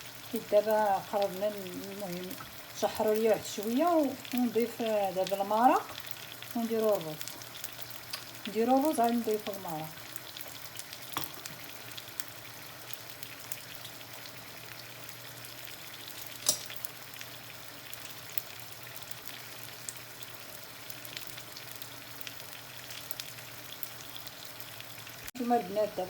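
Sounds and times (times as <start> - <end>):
food sizzling in a pan: 0.0 - 26.0
small crackles: 5.2 - 25.3.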